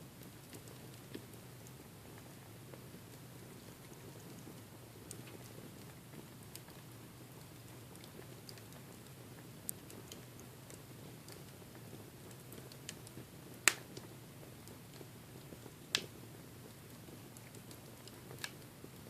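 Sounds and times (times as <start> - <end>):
wood fire crackling: 0.0 - 19.0
sharp fire pops: 12.8 - 14.0.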